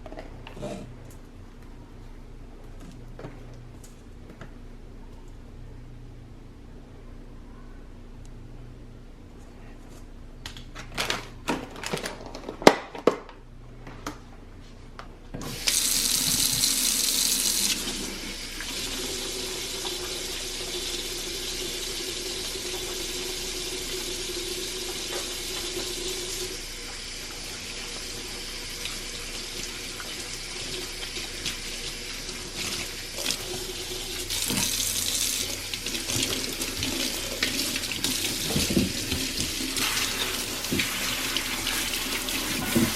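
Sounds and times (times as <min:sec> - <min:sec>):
water running into sink: 0:15.4 - 0:42.9.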